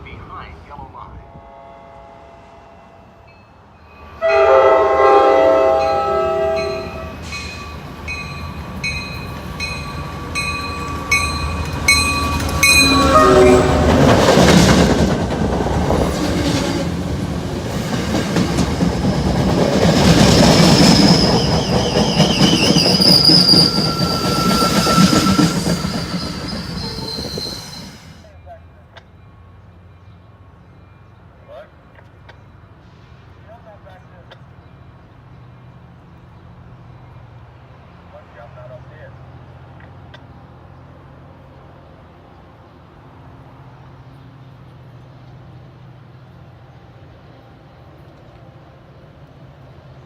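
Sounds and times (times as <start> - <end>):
train horn chord: 1.1 - 3.4, 4.2 - 7.2, 12.6 - 14.2
train wheels rushing on rail: 4.1 - 28.2
bell ringing: 6.6 - 13.7
high-pitched wheel squeal: 9.7 - 13.9, 20.5 - 28.3.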